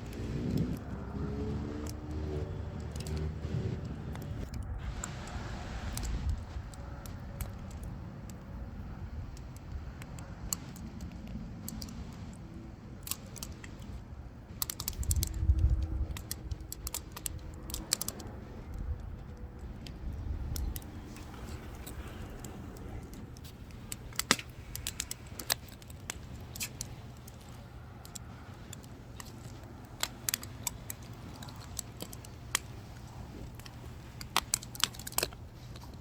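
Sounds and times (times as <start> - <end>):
low rumble: 0.0 - 7.8
wood fire crackling: 0.0 - 36.0.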